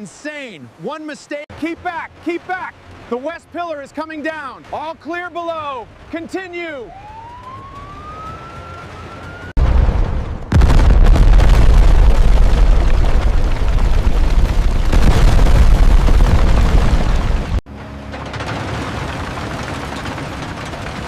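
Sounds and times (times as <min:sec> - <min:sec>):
structure collapsing: 0:09.6 - 0:21.0.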